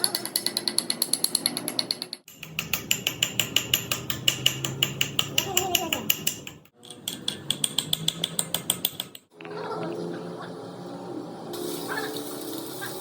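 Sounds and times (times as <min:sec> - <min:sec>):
hammer striking steel: 0:00.0 - 0:09.2.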